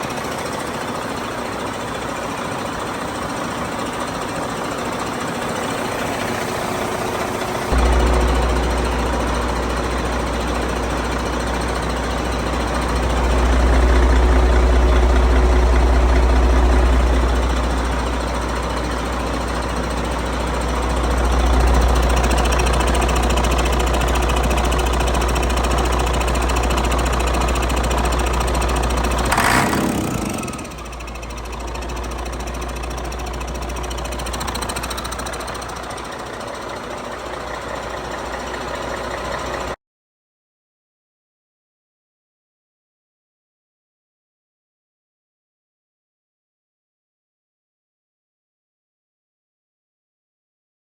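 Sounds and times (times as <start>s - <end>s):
diesel engine running: 0.0s - 39.8s.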